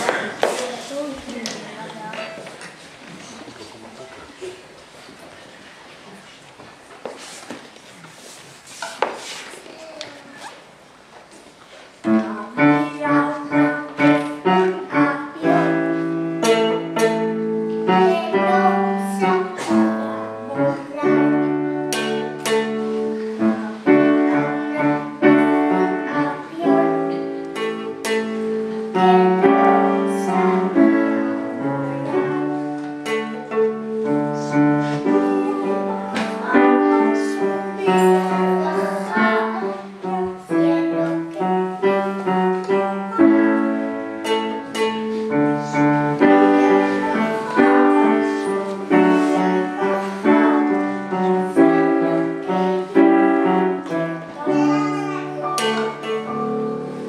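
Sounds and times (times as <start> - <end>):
faint singing voice: 12.0 - 57.0
piano chords: 12.0 - 57.0.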